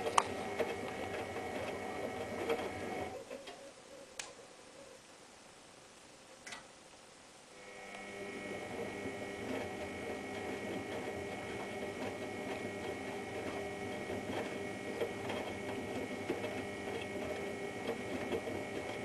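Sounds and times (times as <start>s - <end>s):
washing machine motor whine: 0.0s - 3.2s, 7.6s - 19.0s.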